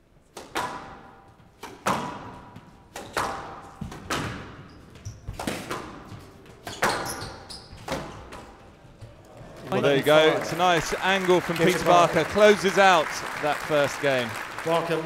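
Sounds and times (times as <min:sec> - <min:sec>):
squash ball hits: 0:00.4 - 0:07.2.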